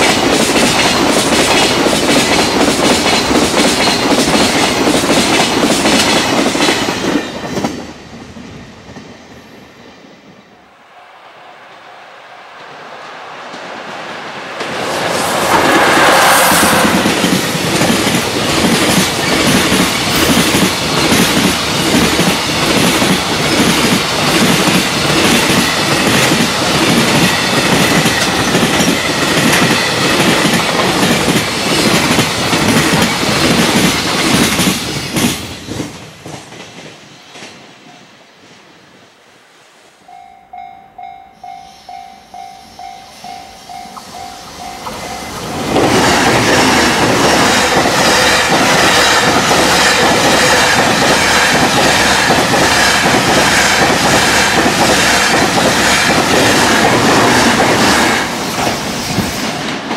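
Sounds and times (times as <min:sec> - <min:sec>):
train wheels clattering over rail joints: 0:00.0 - 0:07.9, 0:44.8 - 0:59.9
level crossing warning bell: 0:40.0 - 0:45.8.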